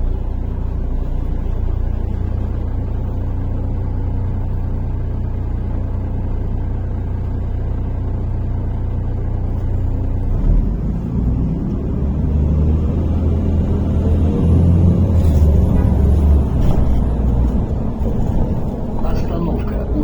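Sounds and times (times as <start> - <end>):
bus engine idling and accelerating: 0.0 - 20.0
rising engine whine: 9.5 - 20.0.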